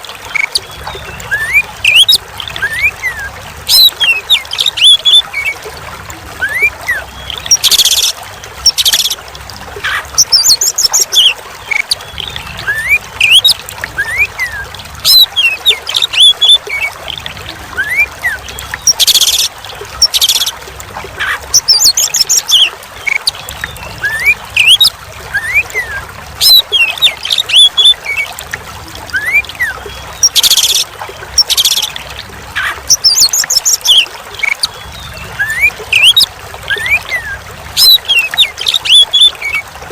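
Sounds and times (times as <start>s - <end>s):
trickle of running water: 0.0s - 39.9s
bird singing whistles and chirps: 23.9s - 28.3s.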